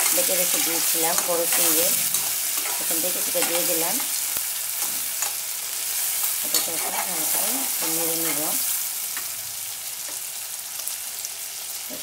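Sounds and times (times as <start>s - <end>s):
spatula scraping a pan: 0.0s - 7.4s
prawns sizzling in oil: 0.0s - 12.0s.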